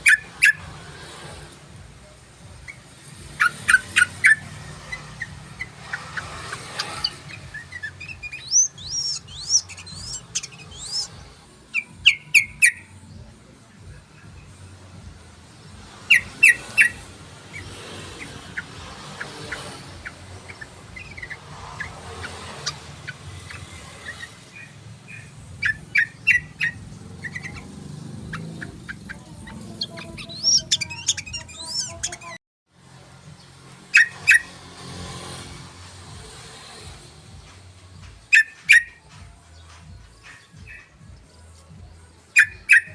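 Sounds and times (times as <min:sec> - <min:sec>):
bulbul chirping: 0:02.5 - 0:13.2, 0:15.5 - 0:32.4, 0:42.2 - 0:42.9.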